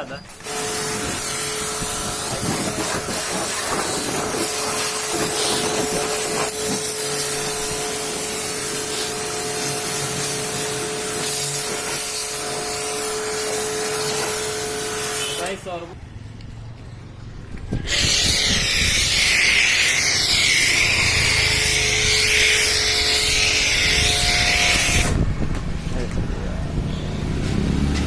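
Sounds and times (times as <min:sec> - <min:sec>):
pressure washer jet hissing: 0:00.3 - 0:15.6, 0:17.9 - 0:25.2
machine whine: 0:17.8 - 0:25.3.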